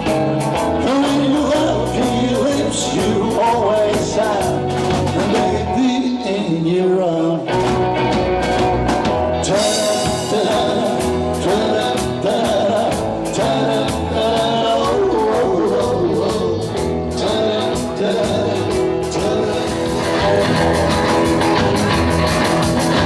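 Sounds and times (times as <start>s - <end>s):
drums steady beat: 0.0s - 5.8s, 7.5s - 23.0s
rock band playing: 0.0s - 23.0s.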